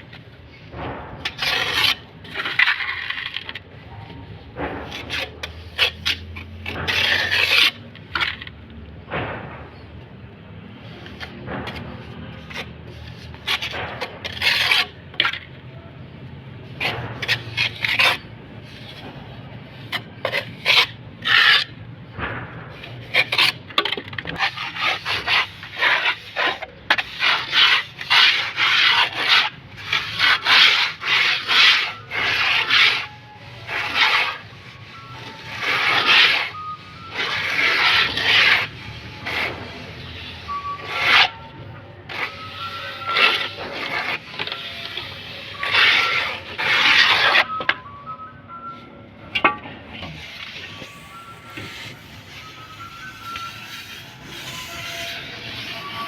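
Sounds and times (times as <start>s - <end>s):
trowel scraping mortar: 0.0s - 3.7s, 4.7s - 8.5s, 10.7s - 15.6s, 16.7s - 21.8s, 22.7s - 47.8s, 49.4s - 56.0s.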